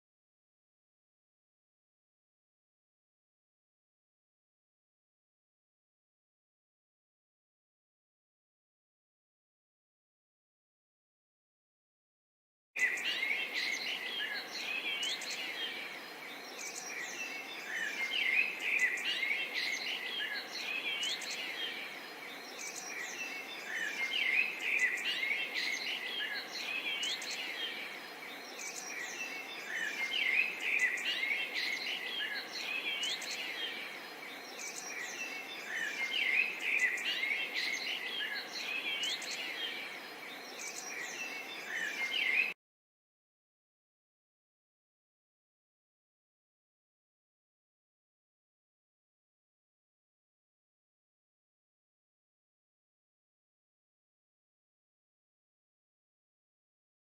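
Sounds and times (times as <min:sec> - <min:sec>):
birds chirping and whistling: 0:12.8 - 0:42.6.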